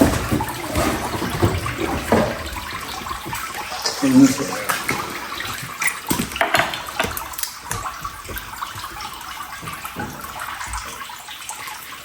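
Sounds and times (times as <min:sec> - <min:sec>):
liquid splashing and running: 0:00.0 - 0:12.0.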